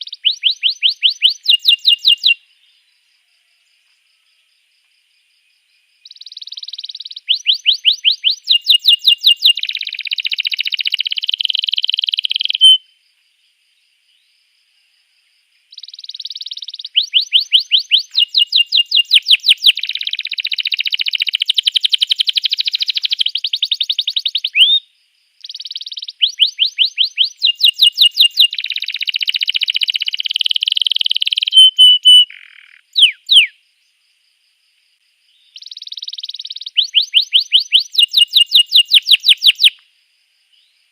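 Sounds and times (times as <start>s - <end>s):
canary singing trills: 0.0s - 2.9s, 6.0s - 13.0s, 15.7s - 33.6s, 35.3s - 39.8s.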